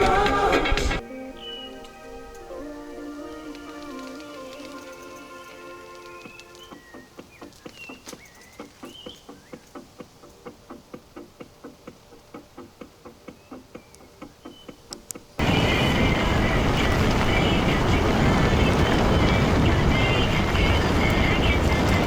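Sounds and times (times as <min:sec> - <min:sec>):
birds chirping: 0:00.0 - 0:22.0
steady ticking: 0:14.9 - 0:22.0
wind noise on microphone: 0:15.4 - 0:22.0.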